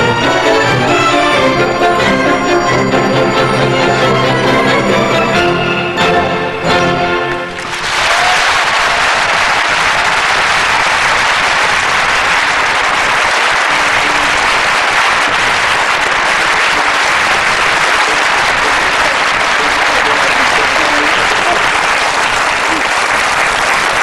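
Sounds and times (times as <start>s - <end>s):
audience applauding: 7.3s - 24.0s.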